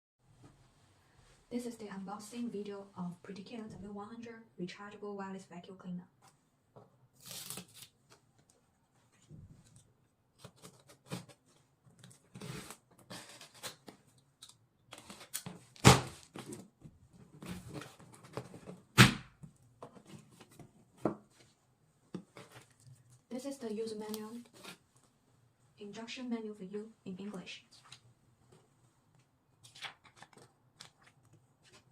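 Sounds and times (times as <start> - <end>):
cardboard rustling and tearing: 7.2 - 7.9.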